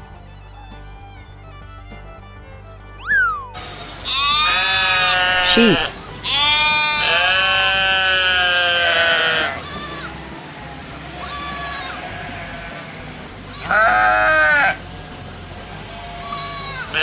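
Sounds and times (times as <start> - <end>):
sheep bleating: 3.6 - 17.0.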